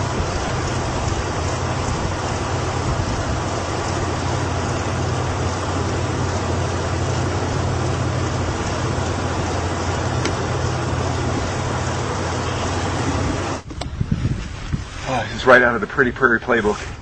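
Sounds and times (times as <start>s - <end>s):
rain hiss: 0.0s - 17.0s
vehicle engine and road rumble: 0.0s - 17.0s.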